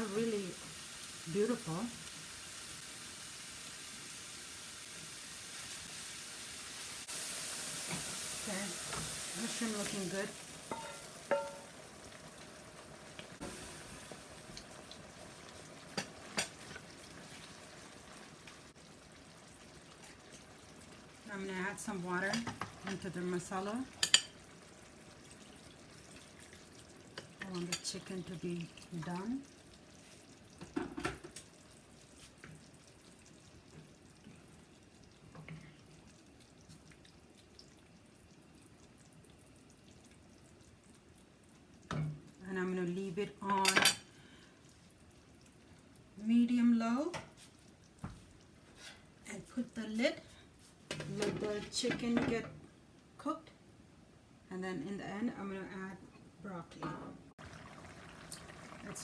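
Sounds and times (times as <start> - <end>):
mushrooms sizzling in a pan: 0.0 - 34.6, 40.2 - 52.7, 57.3 - 59.0
utensil clinking against pan: 10.7 - 11.7.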